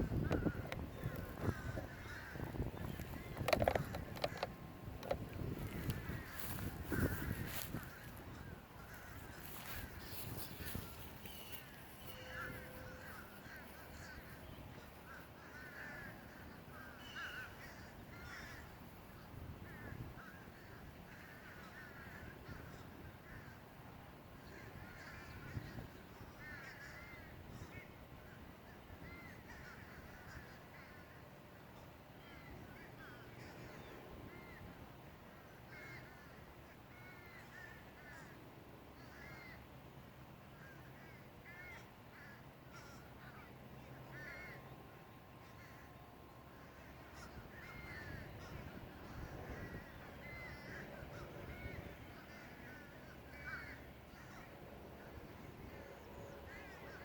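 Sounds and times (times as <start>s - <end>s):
faint crows cawing: 0.0s - 57.0s.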